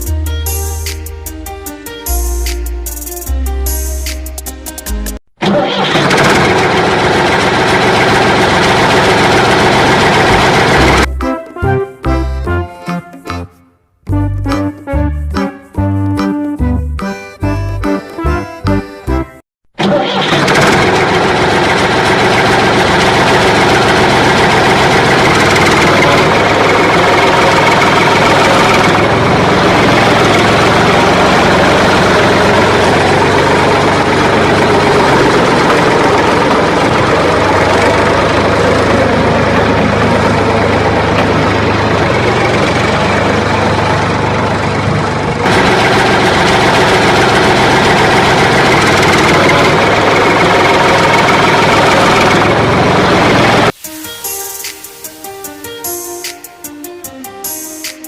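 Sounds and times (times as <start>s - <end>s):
tractor engine idling: 5.4s - 11.1s, 19.8s - 53.8s.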